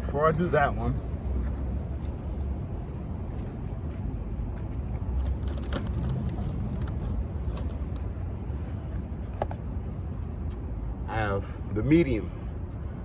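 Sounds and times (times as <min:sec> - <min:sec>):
low rumble of motor vehicle: 0:00.0 - 0:13.0
light clicks and rustles: 0:01.2 - 0:09.7.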